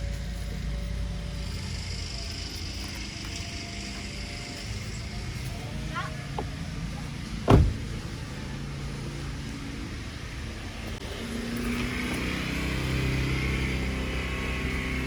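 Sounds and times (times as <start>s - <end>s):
car engine running: 0.0s - 15.0s
sharp thump: 7.5s - 7.8s.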